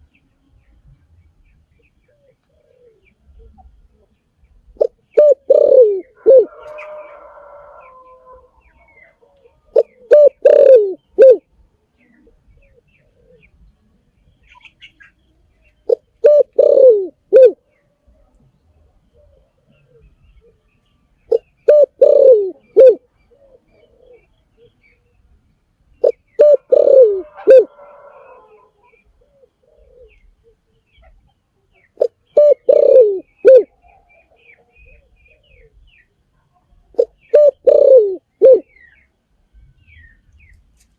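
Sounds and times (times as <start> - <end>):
dove cooing: 2.1 - 13.6, 15.8 - 18.3, 19.0 - 20.7, 21.3 - 24.8, 26.0 - 31.2, 31.8 - 35.8, 36.9 - 39.0.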